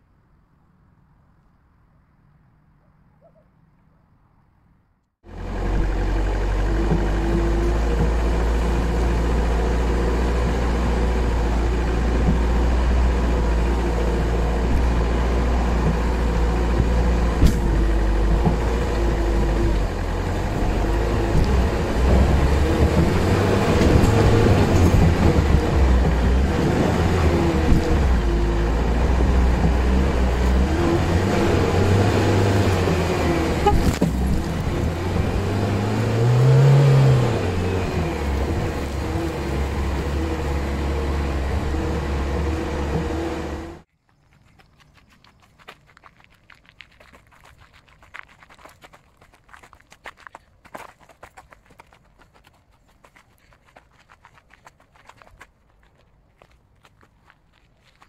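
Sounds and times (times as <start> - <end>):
car engine working under load: 5.2 - 43.9.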